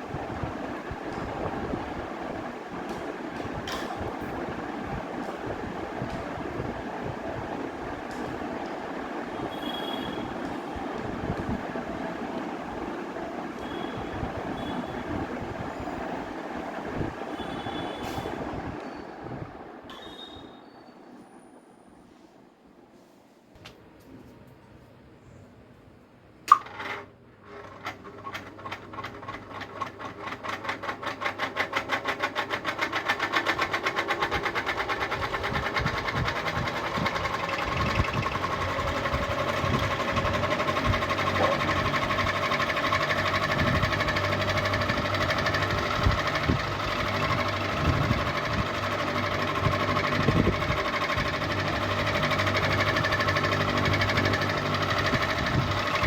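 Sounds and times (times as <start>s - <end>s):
ceiling fan rattling and humming: 0.0s - 56.0s
fan switch click: 26.4s - 26.7s.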